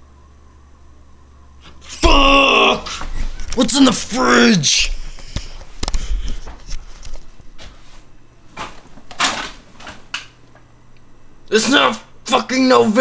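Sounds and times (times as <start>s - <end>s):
clicks knocks and rustles: 8.5s - 10.4s
refrigerator door opening: 8.6s - 10.2s.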